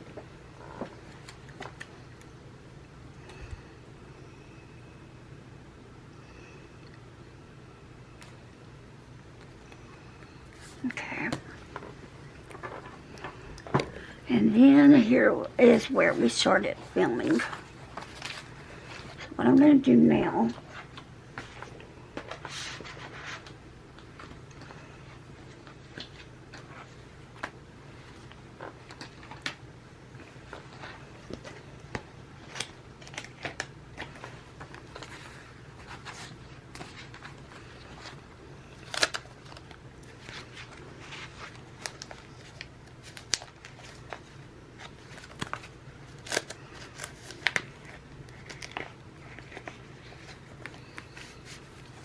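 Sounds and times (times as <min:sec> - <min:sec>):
faint steady hum: 0:00.0 - 0:52.0
paper and plastic rustling: 0:15.8 - 0:19.4, 0:20.5 - 0:29.6, 0:30.2 - 0:52.0.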